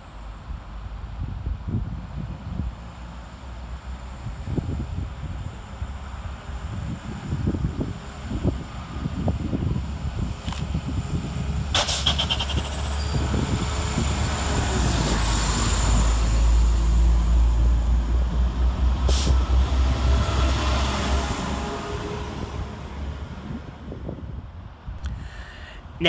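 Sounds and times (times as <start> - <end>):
diesel train rumble: 0.0 - 26.0
sharp clatter: 11.8 - 13.1.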